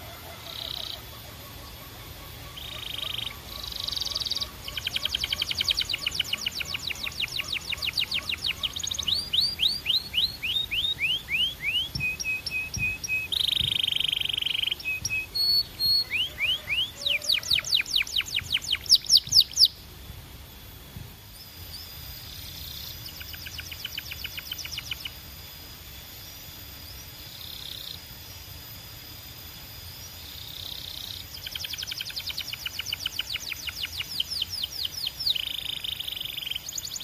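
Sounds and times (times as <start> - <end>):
canary singing trills: 0.0 - 19.8, 21.3 - 26.0, 28.9 - 37.0.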